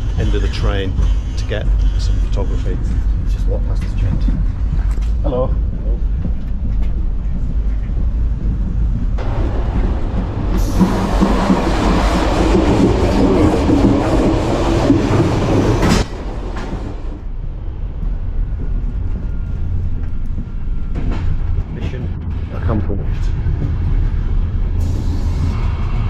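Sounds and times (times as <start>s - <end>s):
train running rumble: 0.0s - 26.0s
gangway door shutting: 9.2s - 17.2s.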